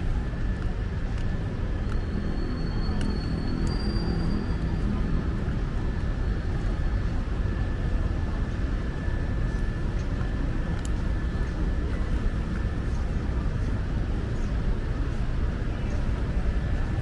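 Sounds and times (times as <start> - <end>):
faint steady tone: 0.0 - 17.0
low street rumble: 0.0 - 17.0.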